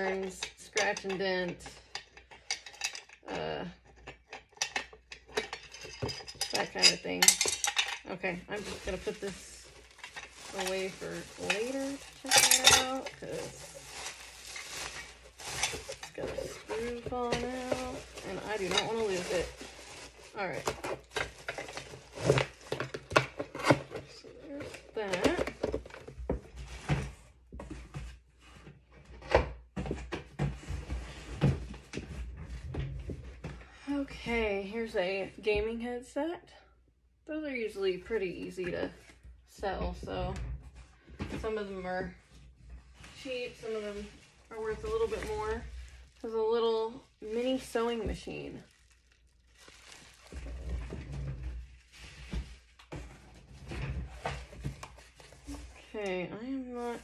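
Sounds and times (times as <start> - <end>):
items rummaged in cardboard box: 0.0 - 33.7, 38.1 - 57.0
rustling: 3.8 - 28.6, 40.6 - 56.0.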